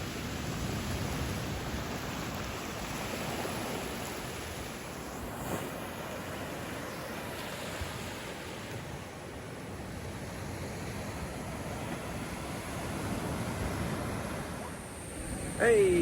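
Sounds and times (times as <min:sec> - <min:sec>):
ocean surf washing on beach: 0:00.0 - 0:16.0.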